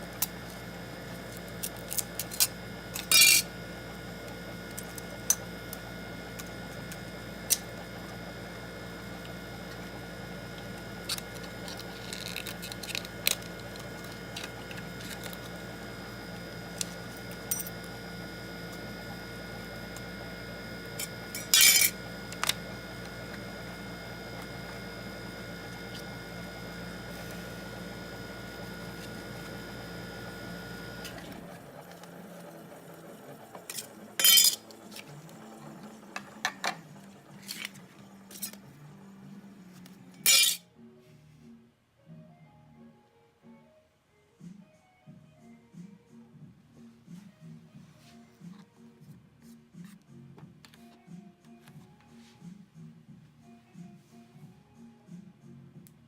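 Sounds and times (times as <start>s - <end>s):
electrical hum: 0.0s - 40.6s
small metal tools clinking: 40.2s - 40.6s.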